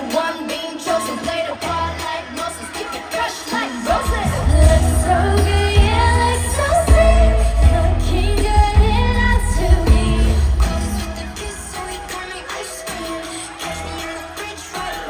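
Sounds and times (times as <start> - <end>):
women singing: 0.0 - 15.0
heavy bass beat: 3.9 - 15.0.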